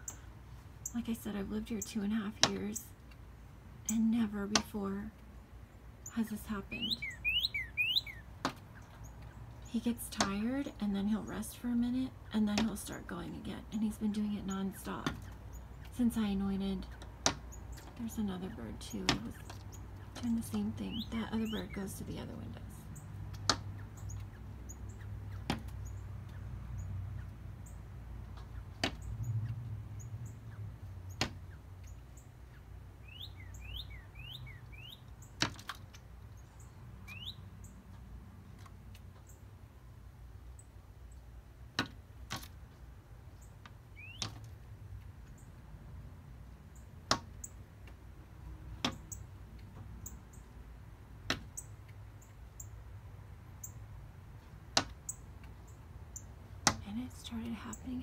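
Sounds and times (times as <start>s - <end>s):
short bird chirps: 6.8s - 8.2s
bird tapping on window glass: 28.2s - 30.0s.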